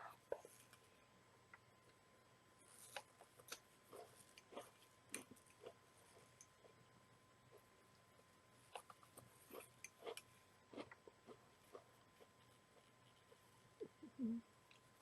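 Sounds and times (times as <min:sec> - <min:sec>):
chewing crunchy cereal: 0:02.7 - 0:06.8, 0:08.6 - 0:13.5.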